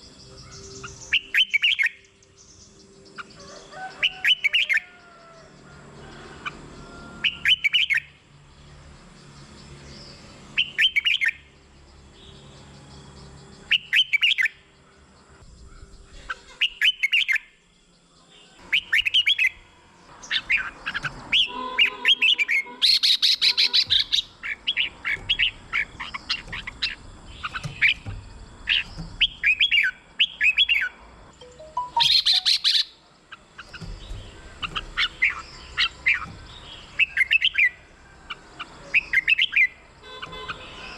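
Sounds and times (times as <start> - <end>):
bulbul singing warbling phrases: 21.3 - 37.6.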